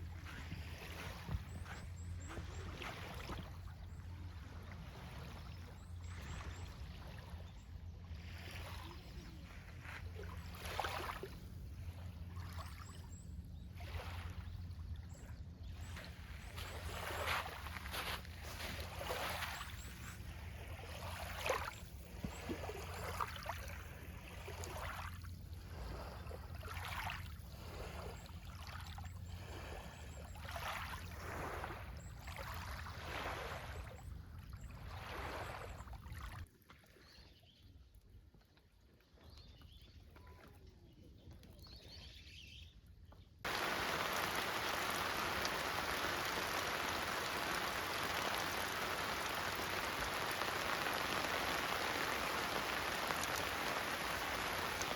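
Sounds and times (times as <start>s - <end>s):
lake waves washing onto shore: 8.3s - 12.9s, 15.7s - 32.0s, 43.5s - 54.9s
low wind rumble: 43.5s - 54.9s
rain hissing: 43.5s - 54.9s.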